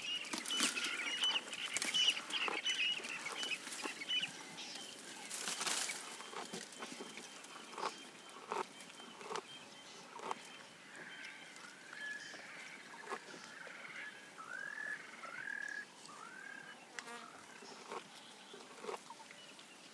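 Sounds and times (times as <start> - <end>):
leaves and twigs snapping: 0.2 - 2.4, 5.0 - 7.9
crackly rustle: 0.2 - 9.4.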